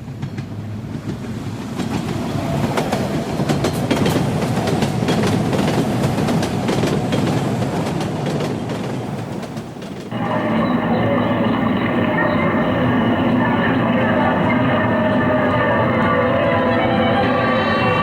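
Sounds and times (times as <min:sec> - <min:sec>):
train wheels clattering over rail joints: 0:00.0 - 0:12.2.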